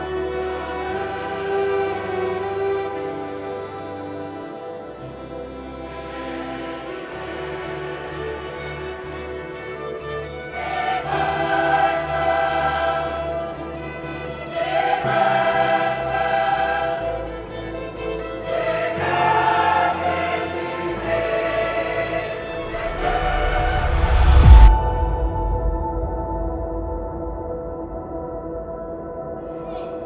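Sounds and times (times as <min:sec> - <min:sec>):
choir singing sustained chords: 0:00.0 - 0:30.0
orchestral accompaniment: 0:21.4 - 0:30.0.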